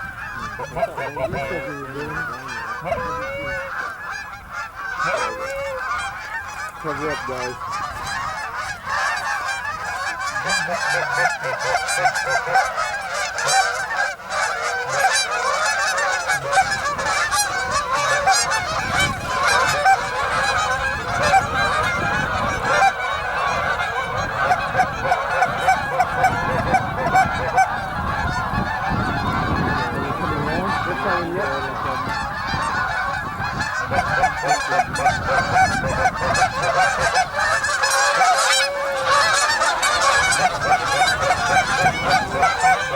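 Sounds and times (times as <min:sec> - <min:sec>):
flock of geese honking: 0:00.0 - 0:42.9.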